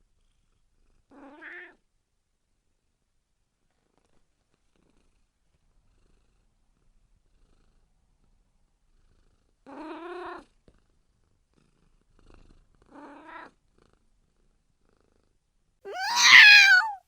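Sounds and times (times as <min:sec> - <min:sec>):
kitten purring: 0:08.9 - 0:17.0
kitten meowing: 0:15.9 - 0:17.0.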